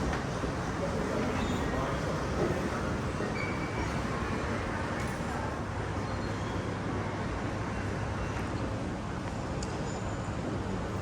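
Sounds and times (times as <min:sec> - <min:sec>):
shopping centre ambient rumble: 0:00.0 - 0:06.1.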